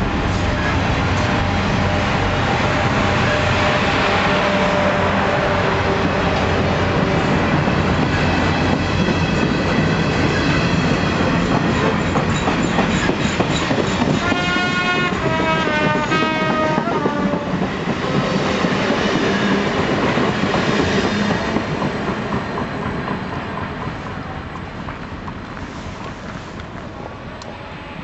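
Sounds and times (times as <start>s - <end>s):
train cars rumbling past: 0.0s - 28.0s
train horn: 0.3s - 7.6s, 14.0s - 17.7s.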